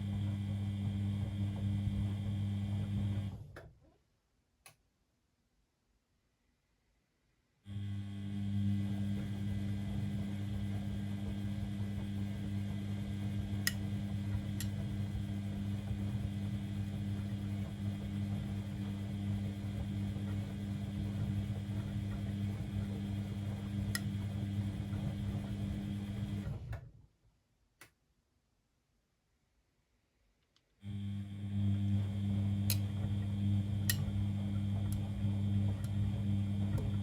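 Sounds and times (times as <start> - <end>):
washing machine humming: 0.0 - 3.6, 7.7 - 27.0, 30.8 - 37.0.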